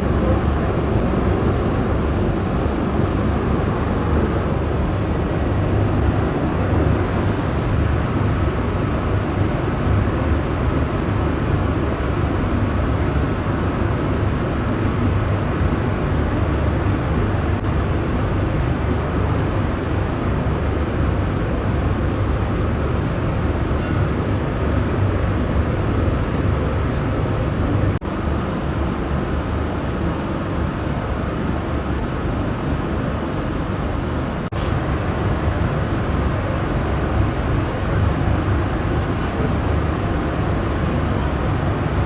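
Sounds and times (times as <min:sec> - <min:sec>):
airliner cabin rumble: 0:32.4 - 0:42.0.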